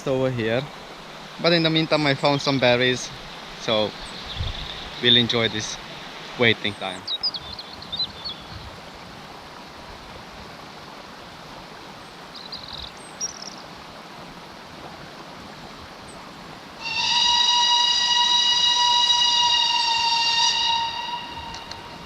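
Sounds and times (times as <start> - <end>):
outdoor background rush: 0.0 - 18.2
steam locomotive whistle: 16.8 - 22.0.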